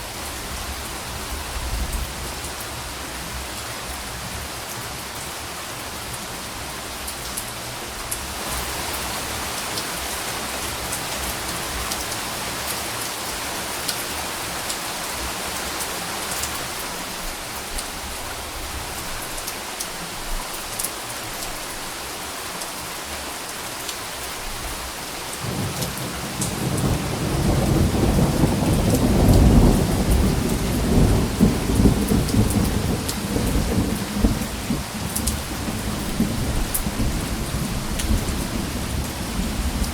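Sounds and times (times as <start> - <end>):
rain falling: 0.0 - 39.9
rumble of thunder: 25.4 - 39.9.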